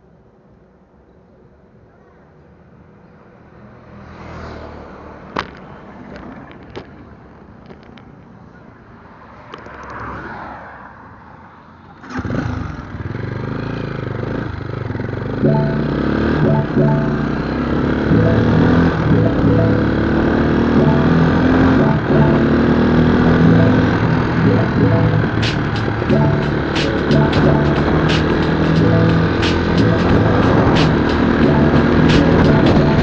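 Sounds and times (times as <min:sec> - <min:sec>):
motorcycle engine running: 0:13.2 - 0:33.0.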